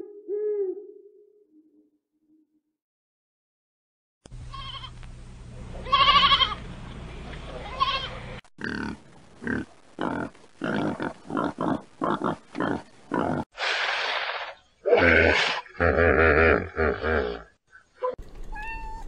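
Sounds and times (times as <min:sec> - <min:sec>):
low steady hum: 0:04.3 - 0:13.1
sheep bleating: 0:05.8 - 0:06.6
pig grunting: 0:08.6 - 0:13.5.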